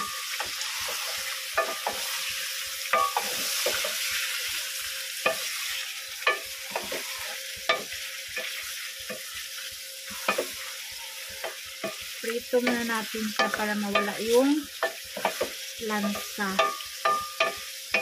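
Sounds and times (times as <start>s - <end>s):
spatula scraping a metal pot: 0.0s - 4.4s, 5.2s - 9.4s, 10.1s - 14.2s
chicken sizzling in oil: 0.0s - 18.0s.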